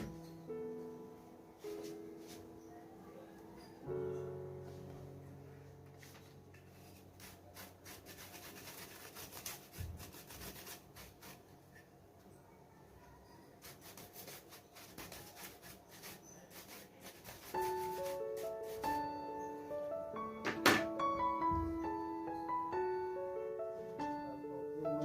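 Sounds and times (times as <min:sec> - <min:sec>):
piano chord: 0:00.0 - 0:06.9, 0:17.6 - 0:25.0
rubbing scrapes: 0:06.7 - 0:11.5, 0:13.6 - 0:19.0.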